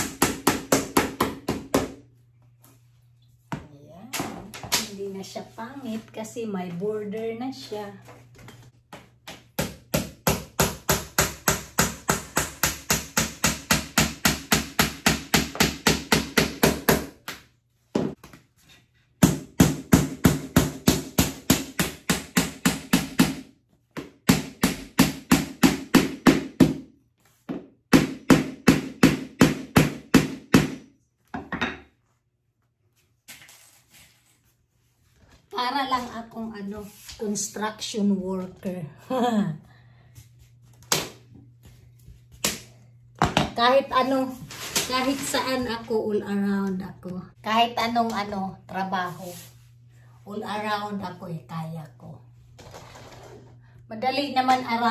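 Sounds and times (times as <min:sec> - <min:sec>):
hammer striking nails: 0:09.6 - 0:17.2, 0:19.2 - 0:26.9, 0:27.6 - 0:30.8.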